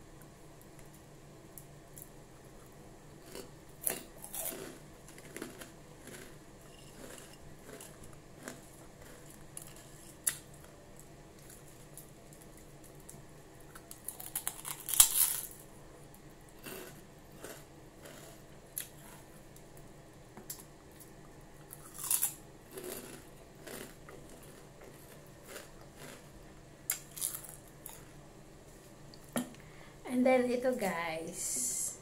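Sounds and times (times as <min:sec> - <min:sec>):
crunchy pork rinds being chewed: 0:01.9 - 0:15.7, 0:16.5 - 0:19.7, 0:20.5 - 0:28.2.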